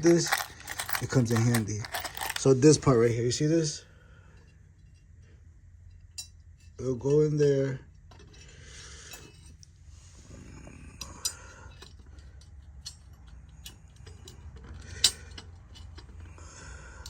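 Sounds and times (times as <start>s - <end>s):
bicycle parts clicking and clinking: 0.0s - 2.6s, 11.0s - 17.0s.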